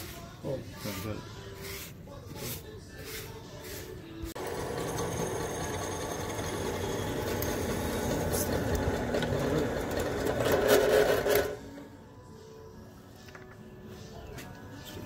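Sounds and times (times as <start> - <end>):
drill press drilling: 4.4 - 11.6.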